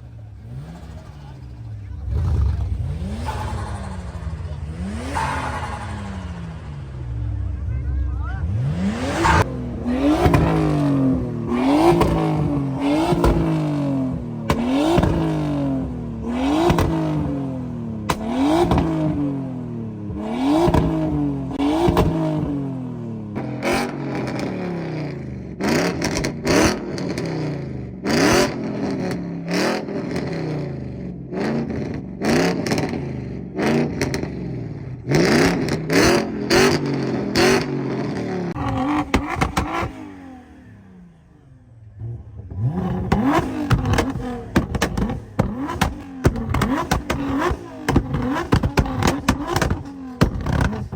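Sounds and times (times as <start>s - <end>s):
car engine revving hard: 0.0s - 50.9s
exhaust pops and bangs: 10.1s - 13.7s, 14.4s - 15.5s, 16.6s - 17.3s, 18.0s - 19.2s, 21.8s - 22.4s, 38.5s - 40.0s, 42.5s - 50.9s.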